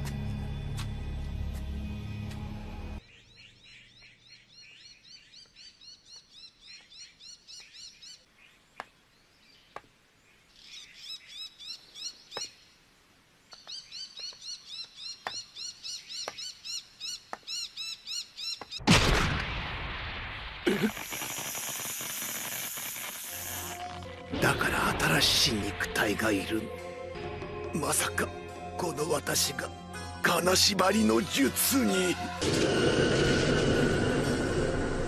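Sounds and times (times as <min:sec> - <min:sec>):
bird chirping: 0:03.0 - 0:12.8, 0:13.4 - 0:18.8.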